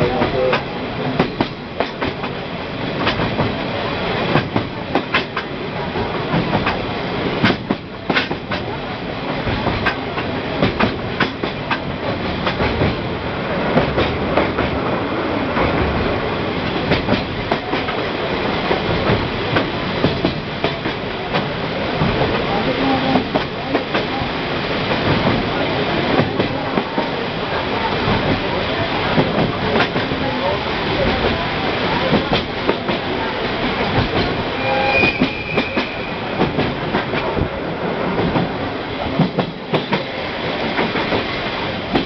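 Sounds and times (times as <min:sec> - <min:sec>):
train cars rumbling: 0:00.0 - 0:42.0.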